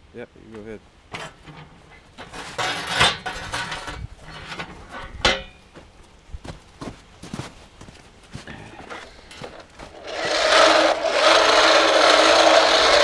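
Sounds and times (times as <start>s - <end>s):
metal clinks and knocks: 1.1s - 5.7s.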